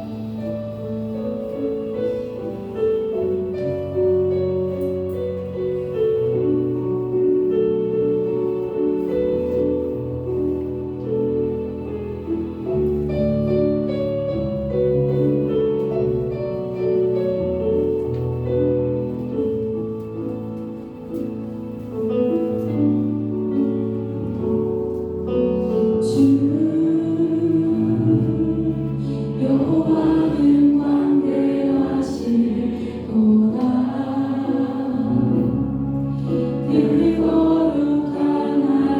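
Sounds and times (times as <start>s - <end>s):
voices singing: 26.5s - 35.5s, 36.6s - 38.9s.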